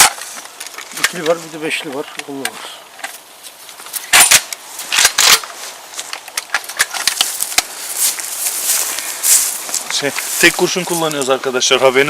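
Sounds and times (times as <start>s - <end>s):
rustling: 0.0s - 11.8s.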